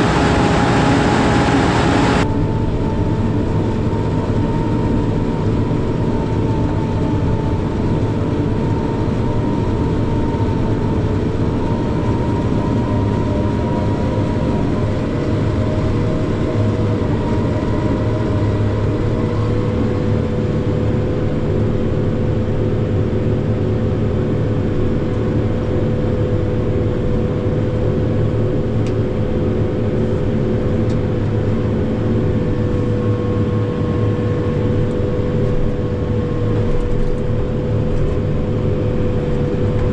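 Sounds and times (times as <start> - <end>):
forage harvester droning: 0.0 - 2.3.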